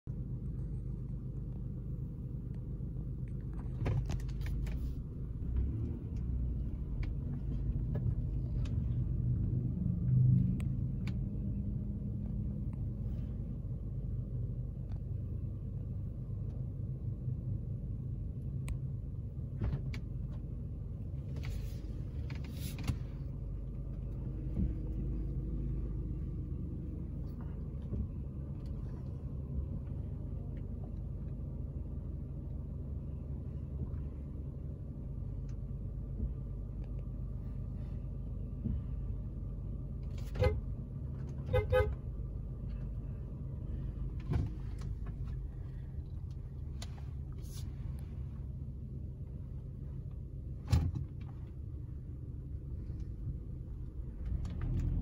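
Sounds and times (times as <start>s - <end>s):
car engine idling: 0.0s - 55.0s.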